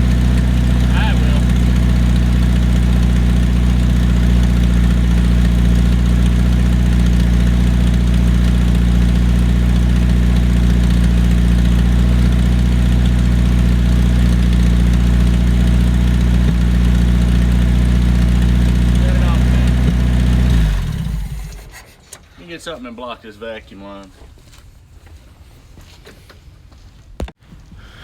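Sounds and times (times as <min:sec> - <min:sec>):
car engine running: 0:00.0 - 0:21.9.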